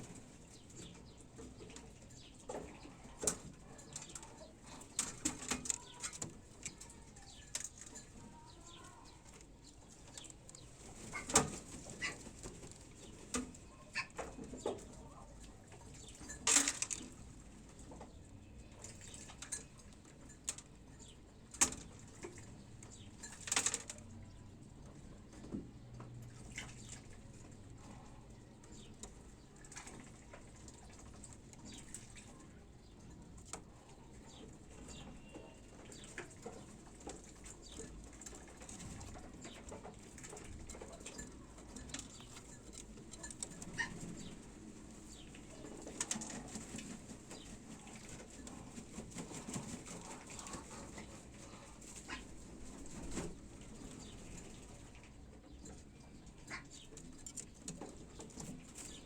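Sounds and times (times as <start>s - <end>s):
faint bird chirps: 34.0s - 36.2s.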